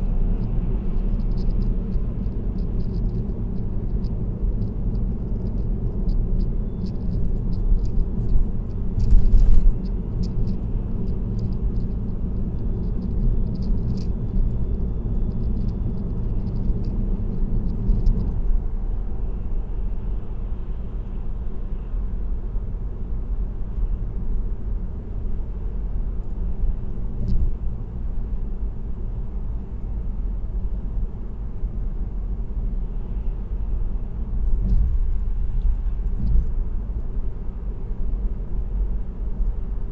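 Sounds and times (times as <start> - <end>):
light ticks and rattles: 0.0 - 18.5, 27.1 - 27.6, 34.4 - 36.6
car road and engine rumble: 0.0 - 39.9.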